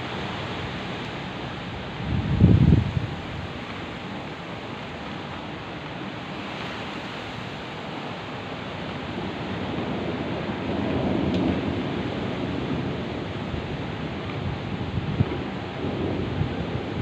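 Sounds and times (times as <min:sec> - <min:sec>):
heavy rain hissing: 0:00.0 - 0:17.0
low rumble of thunder: 0:01.7 - 0:05.1, 0:09.0 - 0:17.0.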